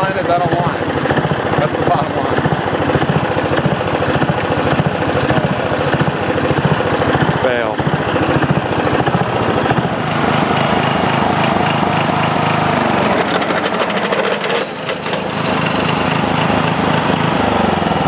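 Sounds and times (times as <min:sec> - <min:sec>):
mower deck rapid clatter: 0:00.0 - 0:18.0
riding mower engine running: 0:00.0 - 0:18.0.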